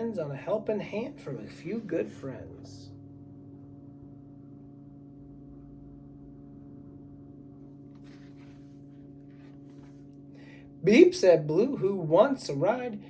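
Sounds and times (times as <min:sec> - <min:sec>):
faint low hum: 0:00.0 - 0:13.0
soft rustling: 0:07.9 - 0:10.2.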